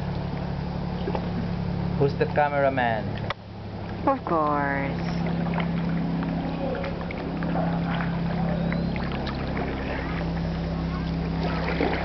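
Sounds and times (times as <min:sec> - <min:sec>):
low hum: 0:00.0 - 0:12.0
water lapping against hull: 0:00.0 - 0:12.0
paddle splashes: 0:04.9 - 0:12.0.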